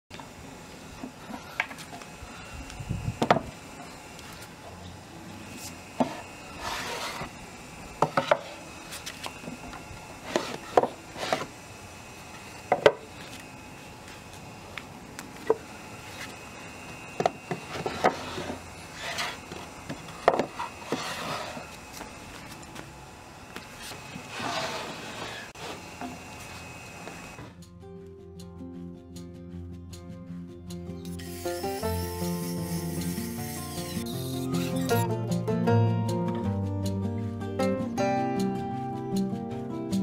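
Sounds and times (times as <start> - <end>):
wood sliding scrapes: 6.0 - 7.3, 10.2 - 11.5, 17.6 - 19.7, 20.4 - 21.8, 23.8 - 25.9.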